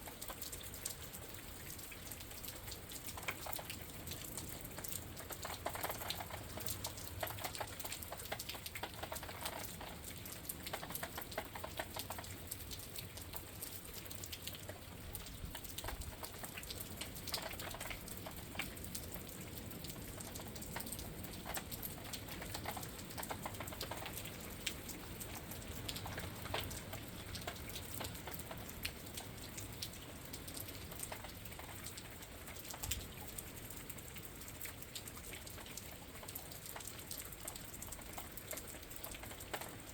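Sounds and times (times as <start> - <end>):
rain falling: 0.0 - 39.9
raindrops ticking: 0.0 - 39.9.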